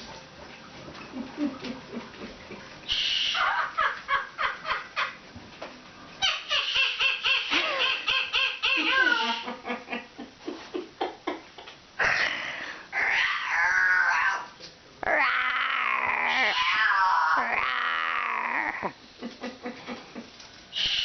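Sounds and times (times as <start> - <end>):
parrot laughing: 3.4 - 5.2, 6.2 - 10.1.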